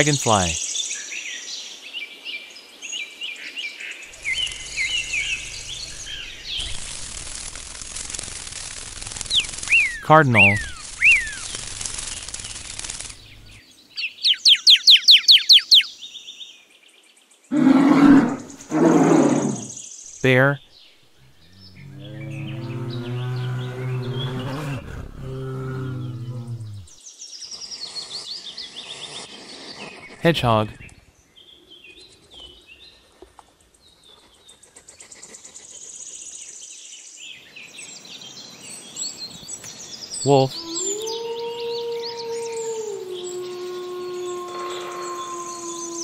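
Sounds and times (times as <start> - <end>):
small birds chirping: 4.0 - 46.0
rapid high-pitched buzzing trill: 4.1 - 13.6
bird singing whistles and trill: 9.3 - 11.4, 14.2 - 15.9
loud low sound: 21.2 - 26.9.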